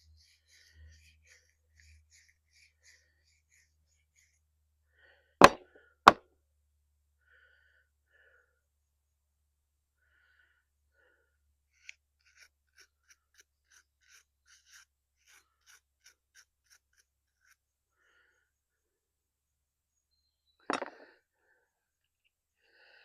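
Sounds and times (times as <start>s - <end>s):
sharp knocks: 5.4s - 6.2s
knife blade scraping metal: 11.8s - 17.6s.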